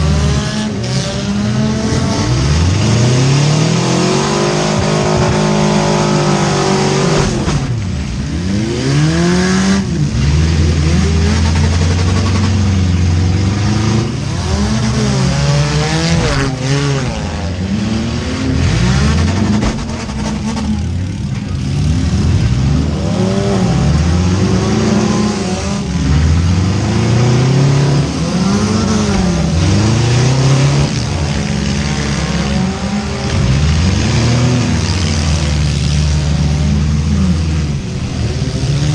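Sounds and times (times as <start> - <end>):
car engine revving hard: 0.0 - 38.9
other car engines: 0.0 - 38.9.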